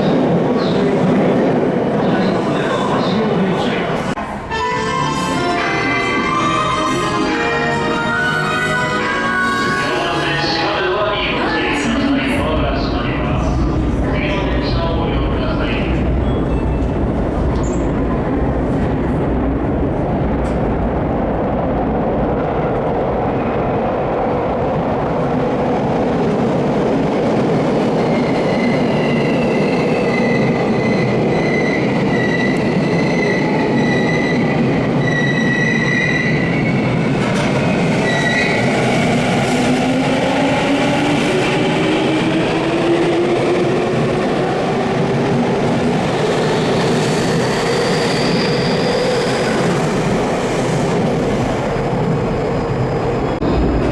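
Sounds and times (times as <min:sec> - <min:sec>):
wheel squeal: 0:47.4 - 0:49.6.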